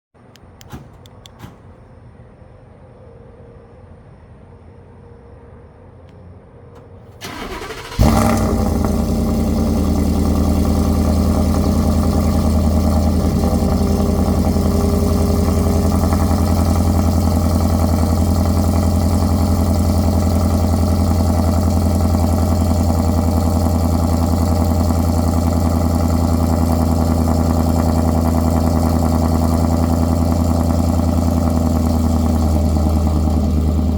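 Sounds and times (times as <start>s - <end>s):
car engine starting and idling: 0.3s - 2.0s, 6.7s - 33.9s
starter cranking: 7.2s - 26.3s.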